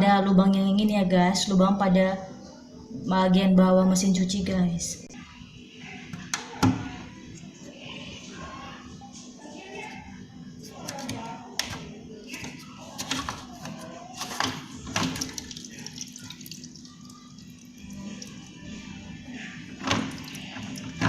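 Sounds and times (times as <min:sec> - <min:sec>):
water dripping and trickling: 0:14.9 - 0:18.6.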